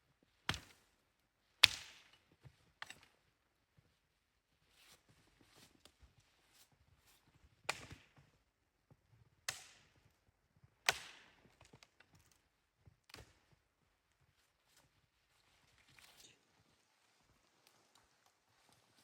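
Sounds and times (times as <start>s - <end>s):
axe chopping wood: 1.6s - 2.1s, 7.7s - 8.1s, 9.5s - 9.9s, 10.8s - 11.4s.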